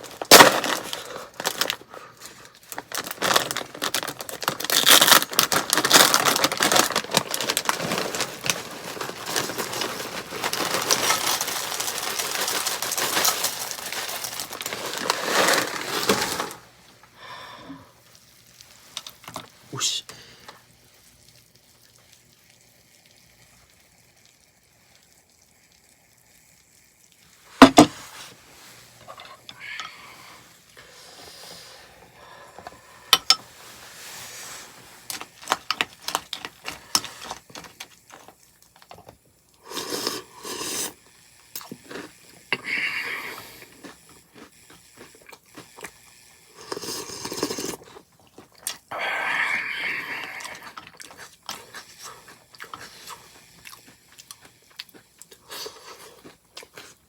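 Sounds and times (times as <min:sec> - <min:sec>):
slurping and chewing: 0:28.9 - 0:57.0.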